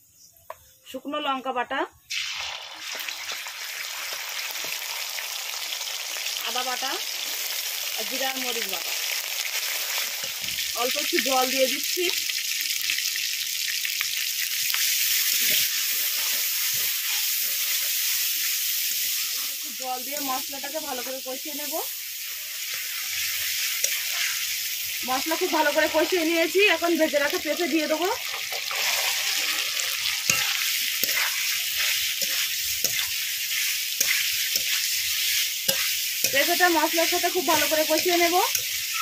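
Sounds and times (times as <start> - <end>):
spice paste sizzling in hot oil: 0.0 - 39.0
spatula stirring: 14.8 - 19.6, 22.2 - 26.1, 28.2 - 39.0.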